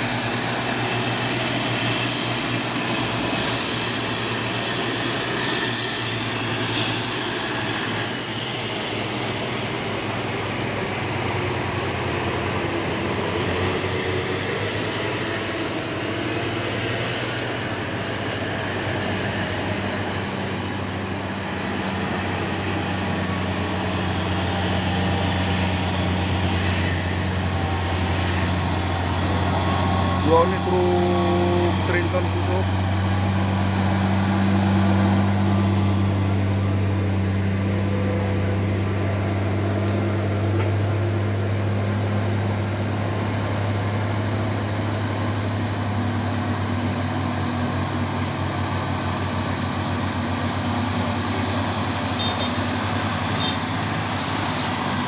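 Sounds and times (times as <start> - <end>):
diesel truck engines running: 0.0 - 55.0
high wavering whine: 0.0 - 55.0.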